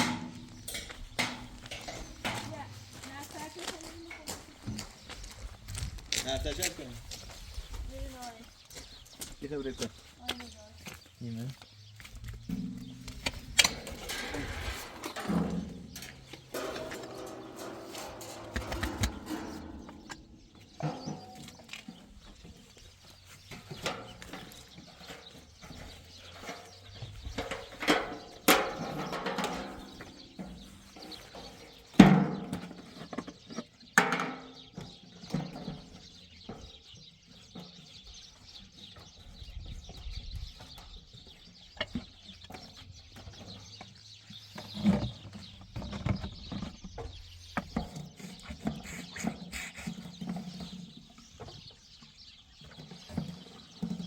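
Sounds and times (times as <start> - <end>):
knocks and clatter: 12.4 - 22.7, 23.5 - 33.4
farm animals calling: 47.8 - 52.0.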